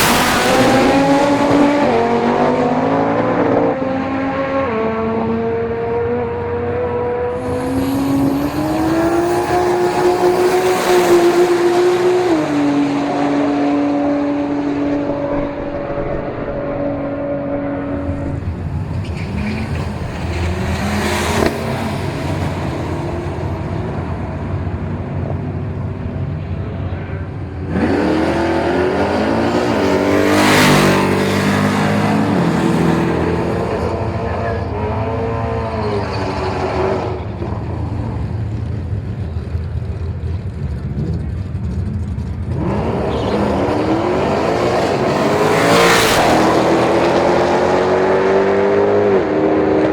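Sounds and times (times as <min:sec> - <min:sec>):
car accelerating past: 0:00.0 - 0:25.2, 0:27.0 - 0:39.1, 0:42.4 - 0:49.9
race car engines roaring: 0:00.0 - 0:49.9.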